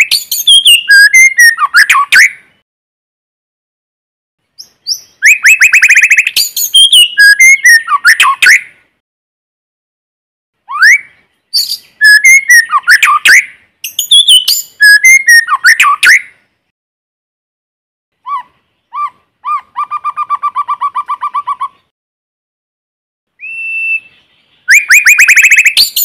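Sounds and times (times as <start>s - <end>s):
bird singing whistles and trills: 0.0s - 2.6s, 4.6s - 8.7s, 10.7s - 16.4s, 18.2s - 21.9s, 23.4s - 26.0s.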